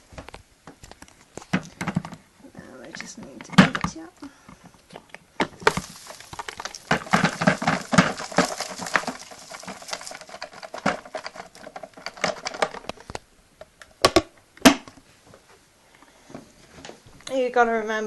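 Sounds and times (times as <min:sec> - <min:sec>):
plastic container clicks and rattles: 0:00.9 - 0:02.2, 0:05.4 - 0:13.2.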